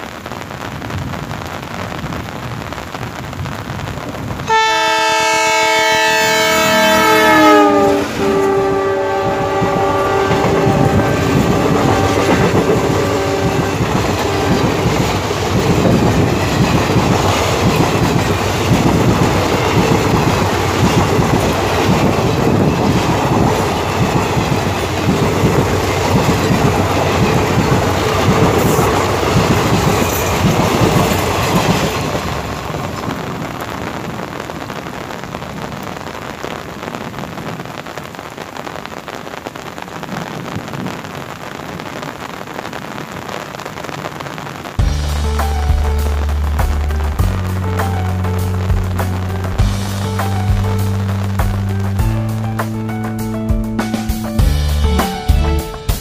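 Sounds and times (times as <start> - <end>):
heavy rain: 0.0 - 56.0
locomotive horn: 4.5 - 15.2
train wheels clickety-clack: 9.5 - 33.1.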